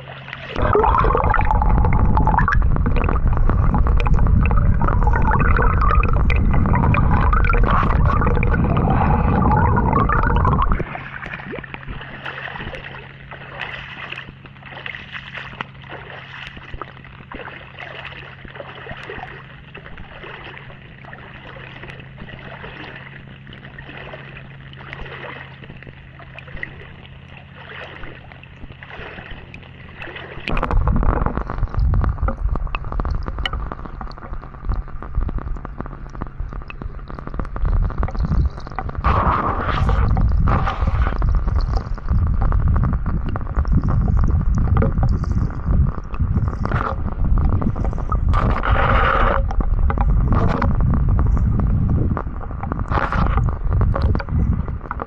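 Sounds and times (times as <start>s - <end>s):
steady hum: 0.0s - 55.0s
water gurgling and sloshing: 0.0s - 55.0s
loud low rumble: 0.6s - 12.1s, 30.5s - 55.0s.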